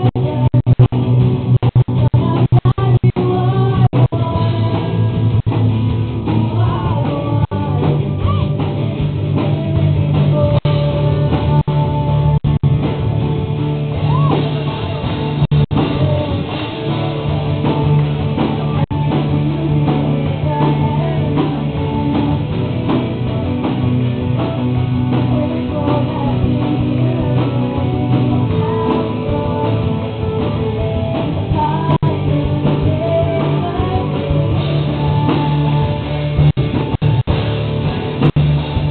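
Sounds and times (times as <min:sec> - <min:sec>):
person singing: 0:00.0 - 0:00.9, 0:01.8 - 0:05.2, 0:06.4 - 0:08.8, 0:09.4 - 0:12.6, 0:14.0 - 0:23.0, 0:24.8 - 0:36.5
bass guitar: 0:00.0 - 0:38.9
drum kit: 0:00.0 - 0:38.9
electric guitar: 0:00.0 - 0:38.9.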